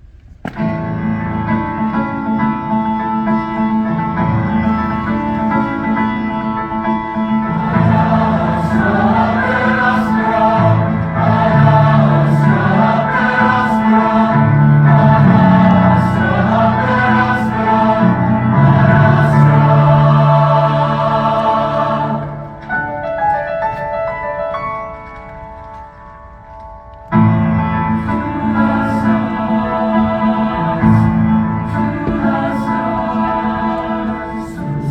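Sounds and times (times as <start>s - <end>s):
piano accompaniment: 0.4s - 34.9s
choir singing: 3.2s - 23.1s, 27.8s - 34.9s.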